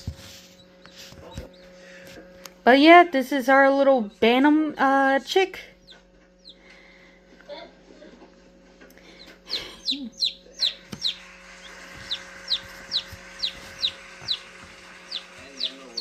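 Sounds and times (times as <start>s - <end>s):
steady low hum: 0.0s - 16.0s
chick peeping: 5.8s - 6.7s, 9.1s - 16.0s.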